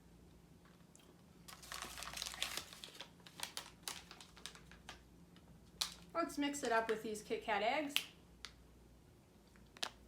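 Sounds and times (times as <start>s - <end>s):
plastic packaging crinkling: 1.4s - 5.1s.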